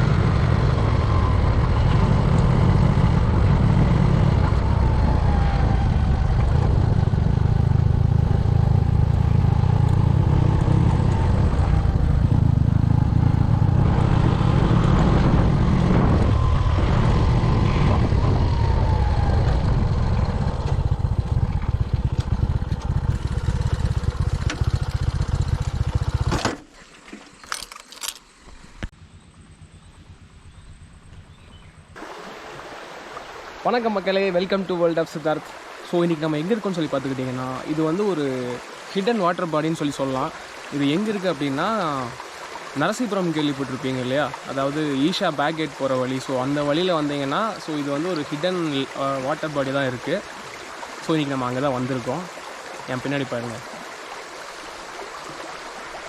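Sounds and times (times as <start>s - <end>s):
wind rumble on microphone: 0.0s - 26.3s, 28.9s - 32.0s
motorcycle engine running: 0.0s - 26.5s.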